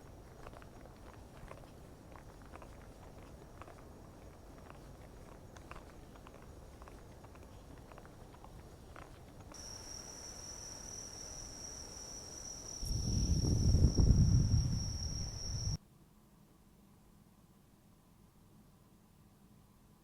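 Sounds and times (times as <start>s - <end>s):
insects singing: 9.6s - 15.8s.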